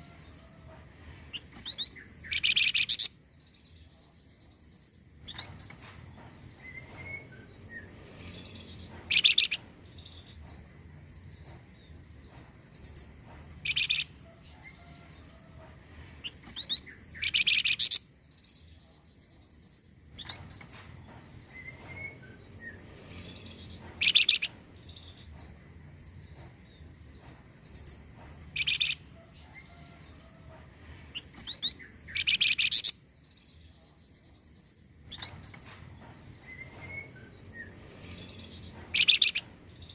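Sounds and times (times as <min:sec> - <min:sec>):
bird chirps and trills: 0:01.3 - 0:04.5, 0:06.6 - 0:10.4, 0:12.9 - 0:14.1, 0:16.2 - 0:20.6, 0:21.4 - 0:25.2, 0:27.8 - 0:30.0, 0:31.1 - 0:35.6, 0:36.3 - 0:39.9.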